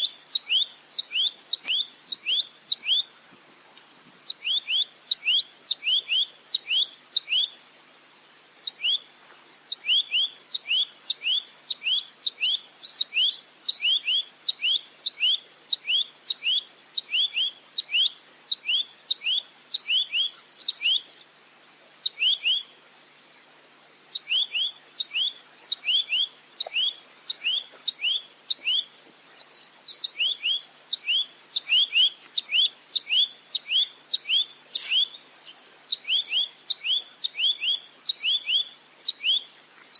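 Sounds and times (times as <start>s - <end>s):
nuthatch calling: 24.2s - 39.5s.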